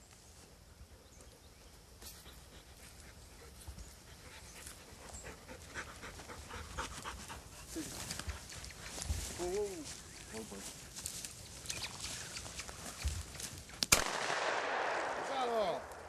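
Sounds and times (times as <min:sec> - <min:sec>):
dog panting: 0:02.2 - 0:08.9.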